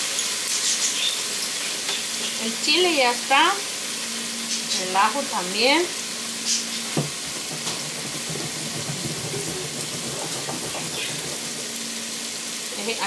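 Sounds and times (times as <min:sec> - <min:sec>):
food sizzling on a stove: 0:00.0 - 0:13.0.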